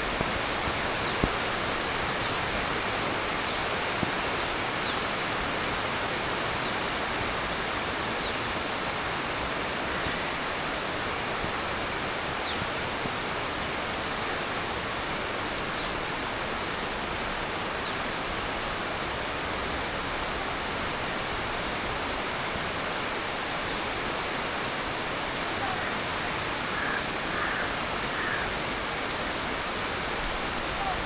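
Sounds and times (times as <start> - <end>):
heavy rain falling: 0.0 - 31.0.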